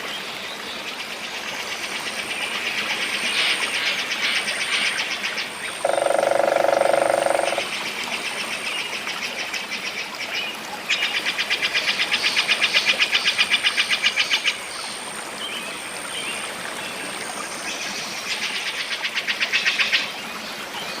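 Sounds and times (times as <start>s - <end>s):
animal rapid pulsed trills: 5.8s - 7.6s
low buzzy pulsed call: 5.8s - 7.6s.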